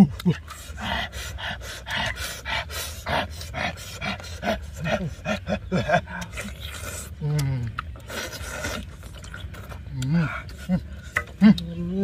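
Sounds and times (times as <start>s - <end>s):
person chewing food: 0.0s - 12.0s
wet lip smacks and mouth clicks: 6.1s - 11.7s.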